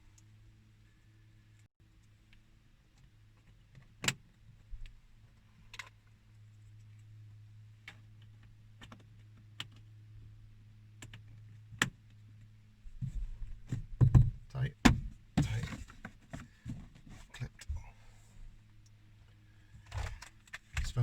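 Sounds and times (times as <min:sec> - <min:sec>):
steady low hum: 0:09.6 - 0:21.0.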